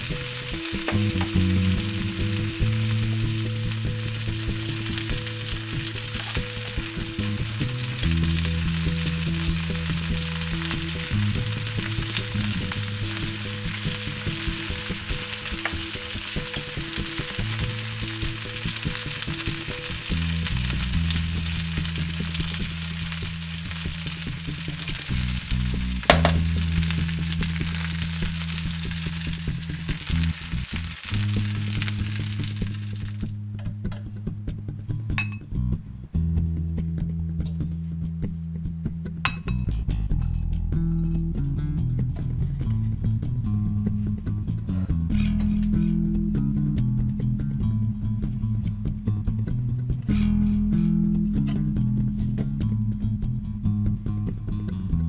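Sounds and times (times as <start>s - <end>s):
blossoms sizzling in a hot pan: 0.0s - 33.2s
looping synth music: 0.0s - 33.6s.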